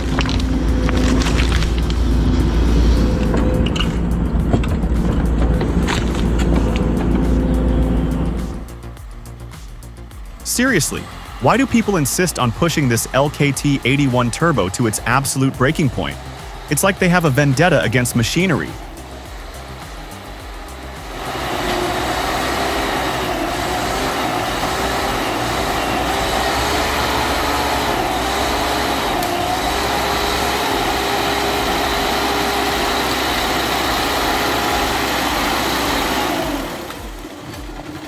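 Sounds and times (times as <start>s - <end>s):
diesel engine under load: 0.0s - 9.0s, 10.1s - 38.0s.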